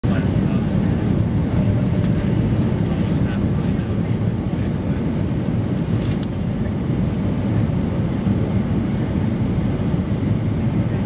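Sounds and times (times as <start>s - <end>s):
jet engine roar in cabin: 0.0s - 11.0s.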